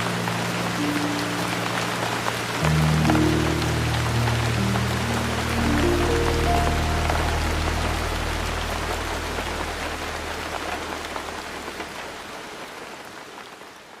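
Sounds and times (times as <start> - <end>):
raindrops tapping: 0.0 - 12.6
steady rain falling: 0.0 - 14.0
low held music note: 2.6 - 11.7.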